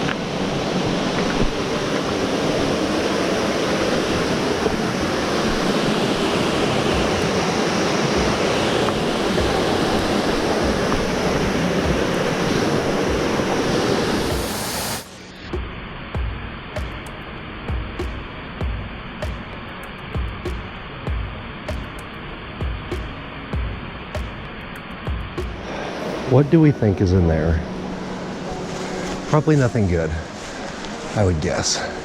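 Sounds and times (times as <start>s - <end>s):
waterfall rushing: 0.0s - 15.1s, 25.5s - 32.0s.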